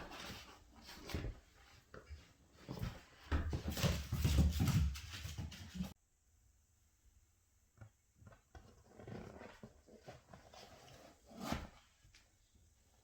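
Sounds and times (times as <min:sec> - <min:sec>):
rustling and scuffling: 0:00.0 - 0:06.0.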